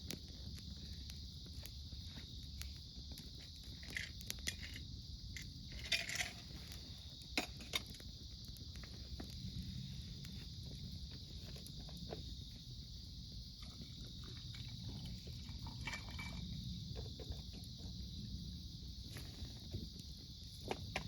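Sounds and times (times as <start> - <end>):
campfire crackling: 0.0 - 21.0
insects chirring: 0.0 - 21.0.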